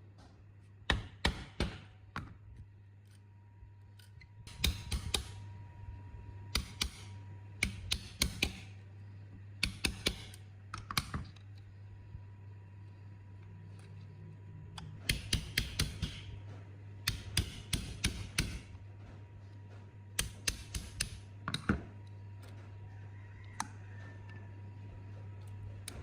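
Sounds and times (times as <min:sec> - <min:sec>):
steady low hum: 0:00.0 - 0:26.0
tool tapping on metal: 0:04.5 - 0:05.4, 0:06.5 - 0:08.7, 0:09.6 - 0:11.3, 0:14.8 - 0:18.7, 0:20.2 - 0:21.9.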